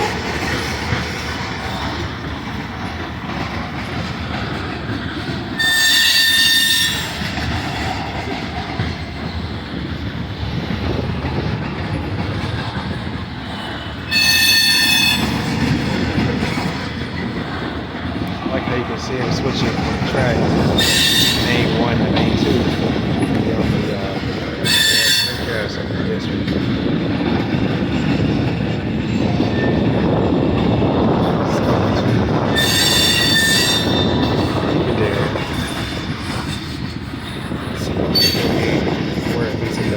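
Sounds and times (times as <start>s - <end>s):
train wheels rumbling on rail: 0.0s - 39.9s
high-pitched wheel squeal: 5.6s - 7.2s, 14.1s - 15.4s, 20.8s - 21.7s, 24.6s - 25.5s, 32.5s - 34.3s, 38.2s - 38.6s.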